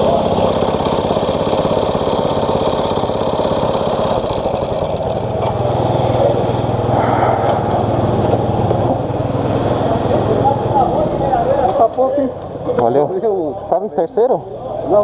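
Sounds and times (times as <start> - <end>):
kart engine running: 0.0 - 12.9
steady low hum: 6.5 - 10.2.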